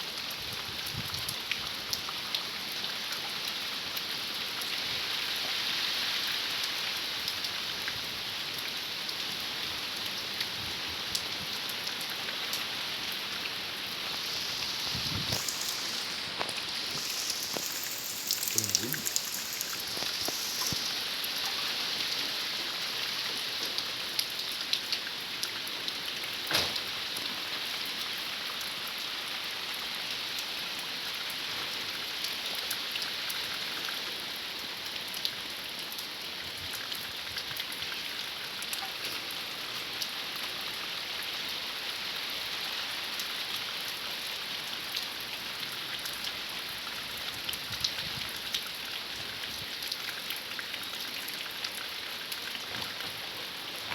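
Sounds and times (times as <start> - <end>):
heavy rain pattering: 11.1 - 26.5.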